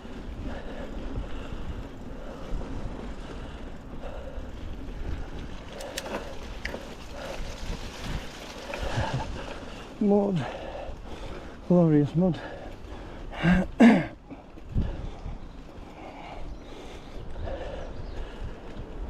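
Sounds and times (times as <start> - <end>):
bike clicks and rattles: 0.0 - 19.0
tyres rumbling through mud: 4.6 - 15.0.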